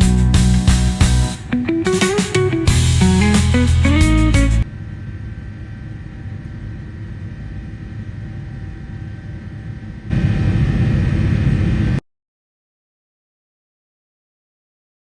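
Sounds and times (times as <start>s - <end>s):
jet engine rumble in cabin: 4.7s - 12.0s.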